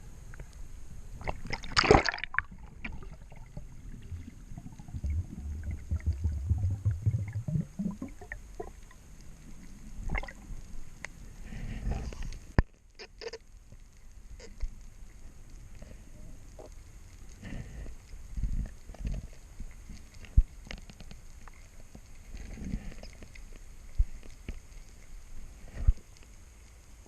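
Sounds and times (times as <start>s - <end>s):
water sloshing and gurgling: 1.2s - 12.6s
loud water splash: 1.4s - 2.5s
low rumble: 2.5s - 12.2s.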